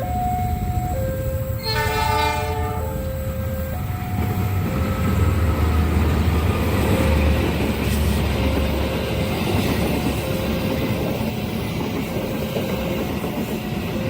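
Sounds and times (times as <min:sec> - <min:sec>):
two-pitch crossing warning signal: 0:00.0 - 0:11.2, 0:12.0 - 0:14.0
train rumble: 0:00.0 - 0:14.0
locomotive horn blast: 0:01.5 - 0:03.2.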